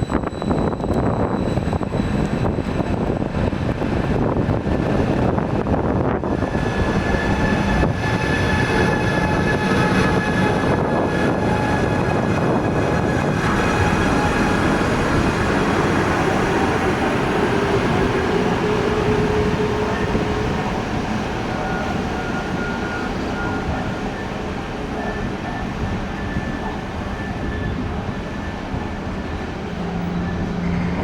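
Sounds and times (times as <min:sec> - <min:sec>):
faint held tones: 0:00.0 - 0:03.2
train wheels rumbling: 0:00.0 - 0:31.0.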